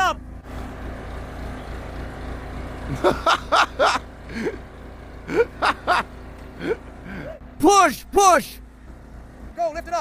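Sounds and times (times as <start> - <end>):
backhoe engine rumbling: 0.0 - 10.0.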